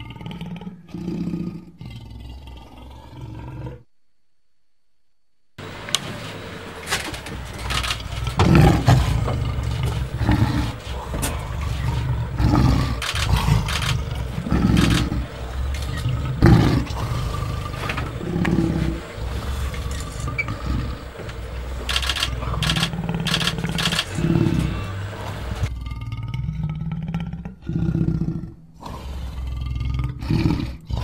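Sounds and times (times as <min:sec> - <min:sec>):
lion roaring grunts: 0:00.0 - 0:03.9, 0:07.4 - 0:31.0
vehicle engine humming: 0:05.6 - 0:25.8.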